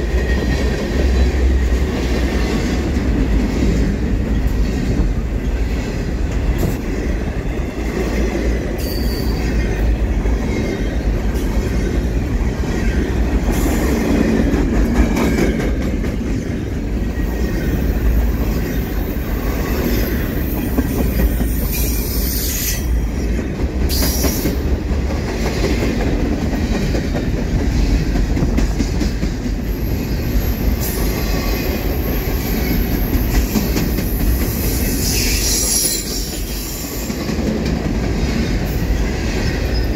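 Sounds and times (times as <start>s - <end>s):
rail clicks: 0.0s - 39.9s
train wheels rumbling on rail: 0.0s - 39.9s
high wheel squeal: 8.8s - 9.8s, 18.7s - 23.1s, 34.0s - 37.1s.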